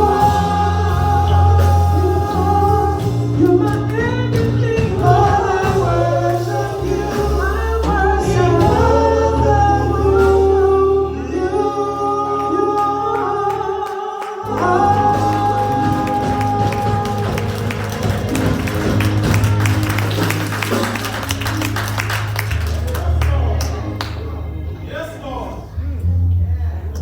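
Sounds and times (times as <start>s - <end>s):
sustained bass notes: 0.0s - 13.8s, 14.5s - 27.0s
gospel singing: 0.0s - 26.0s.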